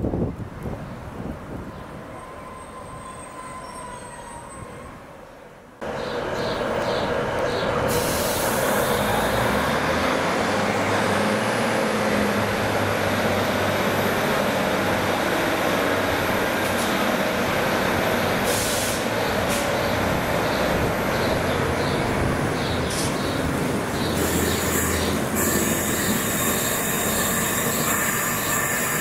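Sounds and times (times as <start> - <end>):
train rumble: 5.8 - 29.0.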